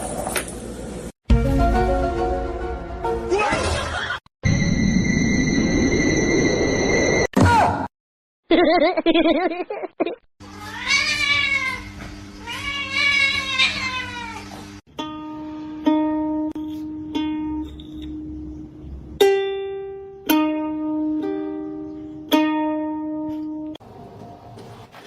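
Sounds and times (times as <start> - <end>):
ukulele plucking slow tune: 1.3 - 3.2, 14.9 - 23.8
cat meowing: 10.6 - 14.5.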